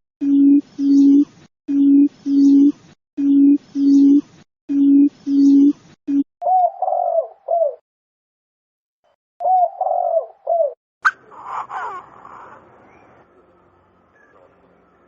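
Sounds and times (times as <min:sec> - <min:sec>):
electronic tone pulses: 0:00.2 - 0:06.3
quail cooing: 0:06.4 - 0:07.8, 0:09.4 - 0:13.0.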